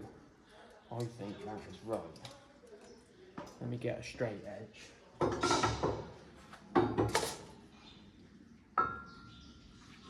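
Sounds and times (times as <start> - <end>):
metal tools clinking: 7.1 - 7.5.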